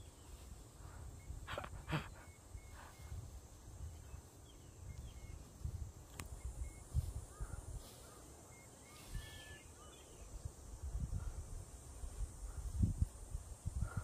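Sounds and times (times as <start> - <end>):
faint bird calls: 0.0 - 5.6, 6.2 - 10.4
wind buffeting microphone: 2.6 - 8.0, 10.2 - 14.0.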